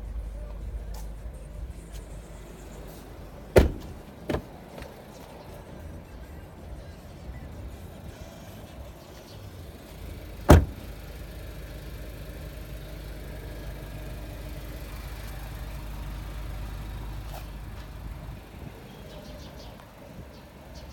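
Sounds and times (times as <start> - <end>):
car engine low rumble: 0.0 - 20.9
sharp loud thump: 3.6 - 4.5, 10.5 - 10.8.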